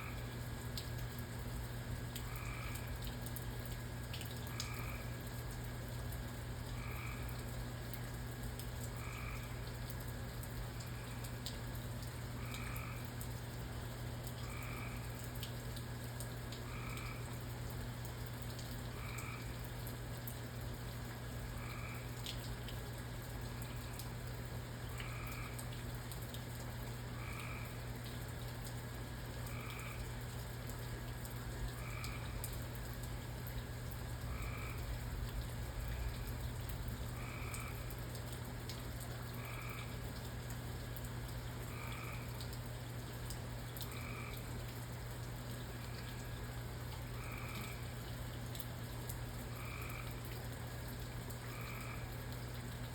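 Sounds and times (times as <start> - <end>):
rain hiss: 0.0 - 52.9
water drips ticking: 0.0 - 52.9
frog croaking: 2.2 - 3.1, 4.3 - 5.3, 6.7 - 7.5, 8.9 - 9.8, 12.4 - 13.3, 14.3 - 15.5, 16.6 - 17.4, 18.9 - 19.6, 21.5 - 22.3, 24.8 - 25.7, 27.2 - 27.9, 29.4 - 30.4, 31.7 - 32.8, 33.5 - 40.1, 41.6 - 42.5, 43.7 - 44.7, 47.1 - 48.0, 49.5 - 50.3, 51.3 - 52.3
steady low hum: 28.8 - 43.8.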